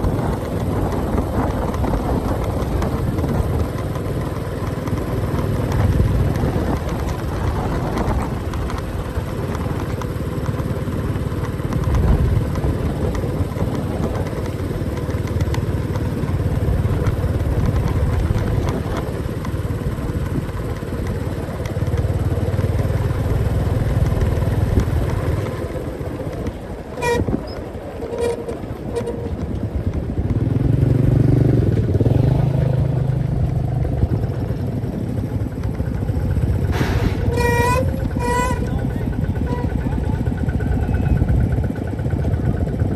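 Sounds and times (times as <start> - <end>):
motorcycle engine running: 0.0 - 42.9
wind and road noise: 0.0 - 42.9
vehicle horn beeps: 27.0 - 29.3, 37.2 - 39.9.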